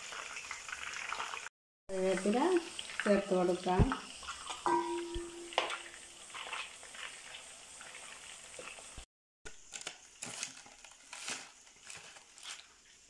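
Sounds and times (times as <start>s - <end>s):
faint sizzle of frying oil: 0.0s - 13.0s
spoon moving in oil: 2.1s - 9.1s.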